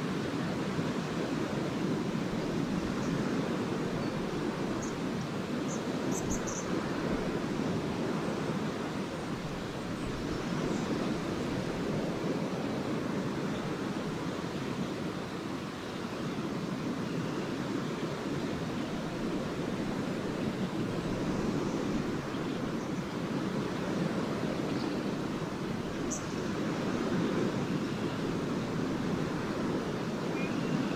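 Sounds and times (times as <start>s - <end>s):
lake waves washing onto beach: 0.0s - 30.9s.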